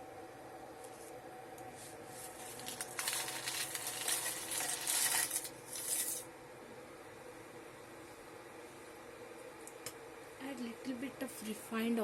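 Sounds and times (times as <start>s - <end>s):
water boiling in kettle: 2.3s - 6.3s
dry pasta clattering into kettle: 2.6s - 6.2s.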